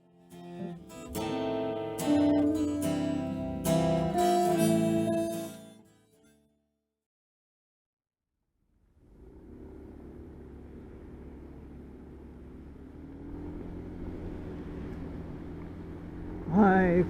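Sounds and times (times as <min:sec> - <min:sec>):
vehicle engine running: 0:08.7 - 0:17.0.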